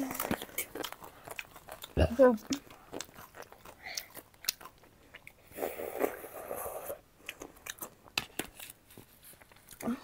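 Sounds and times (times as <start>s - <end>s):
chewing crunchy snack: 0.0s - 10.0s.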